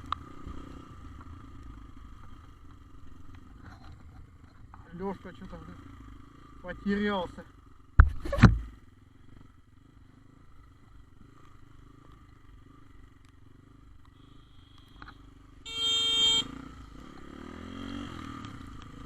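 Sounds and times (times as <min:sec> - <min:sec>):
vehicle horn honk: 0:14.2 - 0:16.7.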